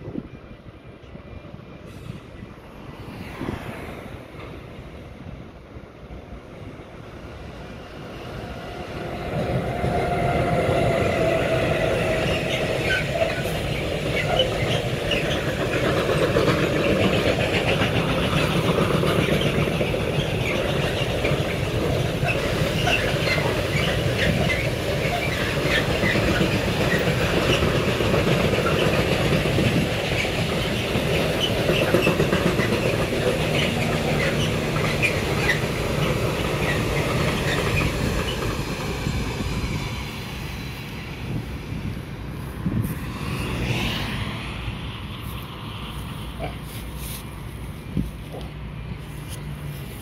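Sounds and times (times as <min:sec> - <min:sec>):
train wheels clattering on rails: 0:09.2 - 0:41.4
wheel squeaks: 0:22.2 - 0:27.7, 0:31.4 - 0:38.4.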